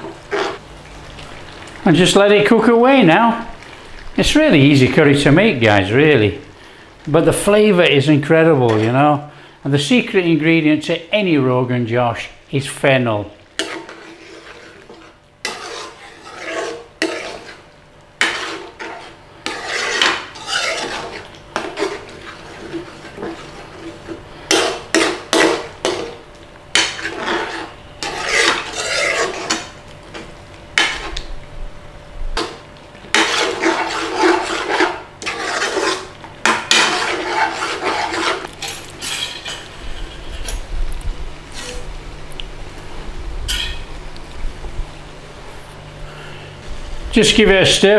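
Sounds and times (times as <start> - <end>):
utensil stirring and scraping pan: 0.0 - 0.6, 8.4 - 9.1, 13.6 - 31.3, 32.4 - 40.7, 41.5 - 41.9.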